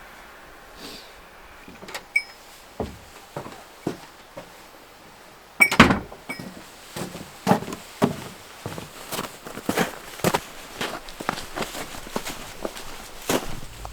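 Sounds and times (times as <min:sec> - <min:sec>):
knocks and clunks: 0:05.6 - 0:06.4.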